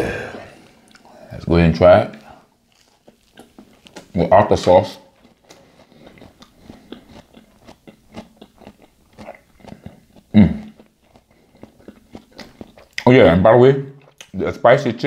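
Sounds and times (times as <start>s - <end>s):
person chewing with mouth clicks: 0.6s - 1.1s, 2.7s - 4.2s, 5.1s - 13.1s, 14.0s - 14.4s.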